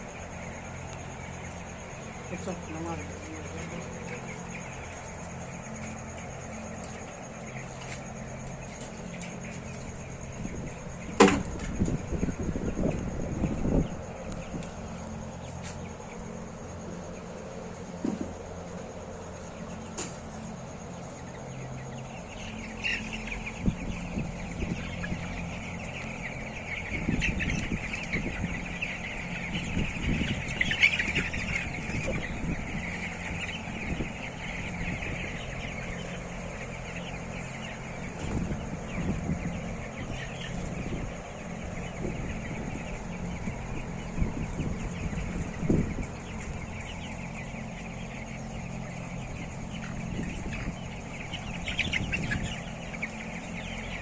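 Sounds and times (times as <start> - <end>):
chickens clucking and chirping: 0.0 - 54.0
steady low hum: 0.0 - 54.0.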